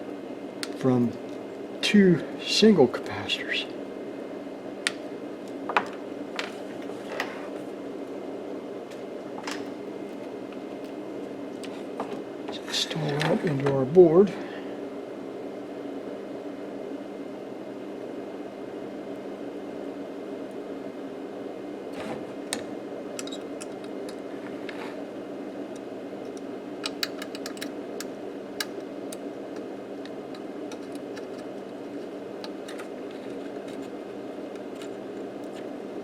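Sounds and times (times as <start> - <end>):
steady background hum: 0.0 - 36.0
tools and small parts clicking: 26.3 - 28.8.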